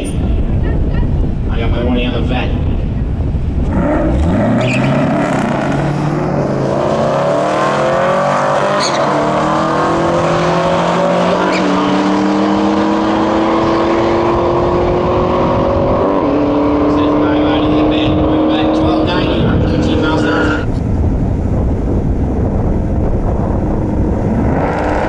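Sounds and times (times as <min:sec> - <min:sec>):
race cars accelerating at full throttle: 0:03.0 - 0:25.0.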